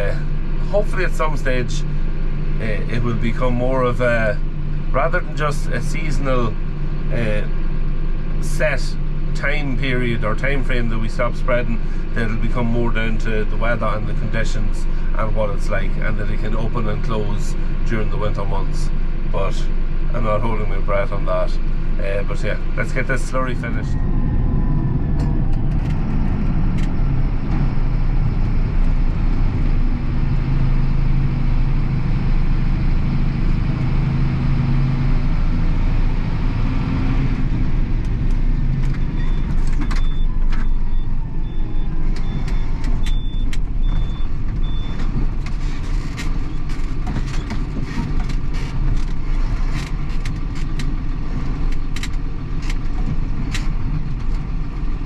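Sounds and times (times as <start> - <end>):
tractor engine running: 0.0 - 55.0
sharp clicks and knocks: 25.2 - 27.7, 42.1 - 54.5.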